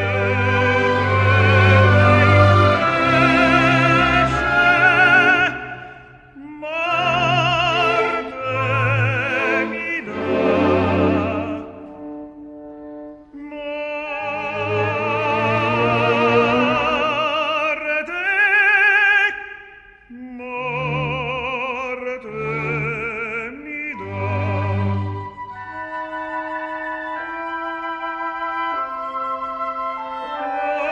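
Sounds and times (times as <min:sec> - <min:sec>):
opera singer with vibrato: 0:00.0 - 0:11.8, 0:13.3 - 0:24.9.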